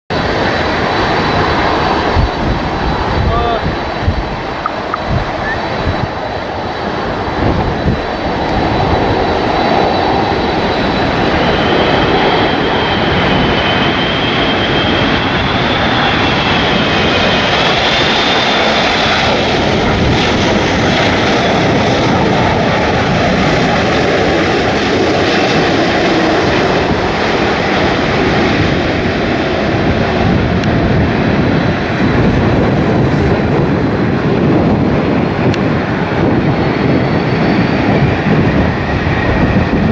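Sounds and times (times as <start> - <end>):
jet engines whining: 0.1 - 39.9.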